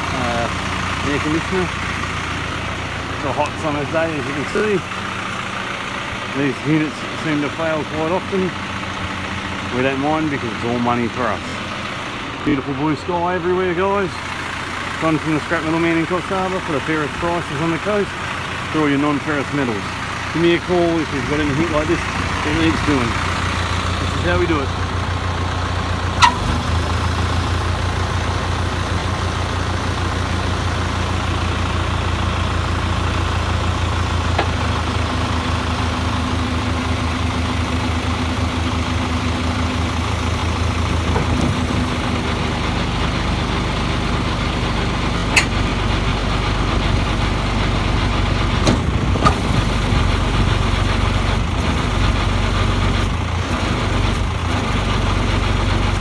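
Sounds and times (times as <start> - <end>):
truck engine idling: 0.0 - 56.0
sharp metal clanks: 26.2 - 26.5.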